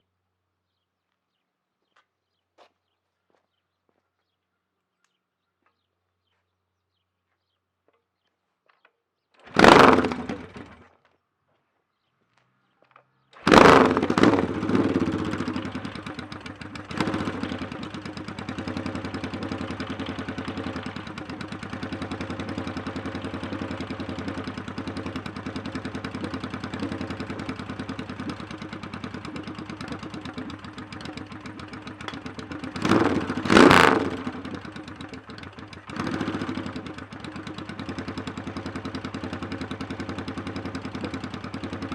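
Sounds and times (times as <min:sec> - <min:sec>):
motorcycle engine starting and idling: 0:08.8 - 0:11.2, 0:12.5 - 0:41.9
engine throttle blips: 0:13.4 - 0:41.9.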